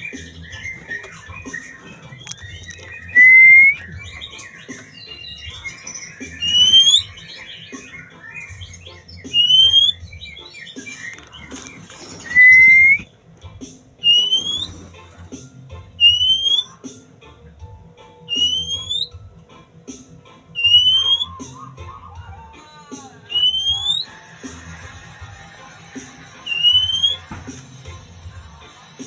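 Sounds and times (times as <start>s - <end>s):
bird whistling upslurred notes: 0.0s - 11.4s, 12.2s - 13.1s, 14.0s - 14.8s, 16.0s - 16.8s, 18.3s - 19.2s, 20.6s - 21.8s, 23.3s - 24.2s, 26.5s - 27.3s
soft bird twittering: 0.0s - 13.1s, 14.0s - 14.8s, 16.0s - 16.8s, 18.2s - 19.2s, 20.6s - 22.1s, 23.2s - 24.2s, 26.4s - 27.3s.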